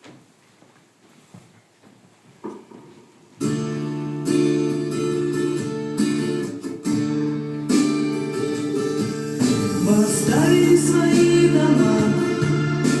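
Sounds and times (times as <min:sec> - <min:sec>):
strummed acoustic guitar: 0:03.4 - 0:13.0.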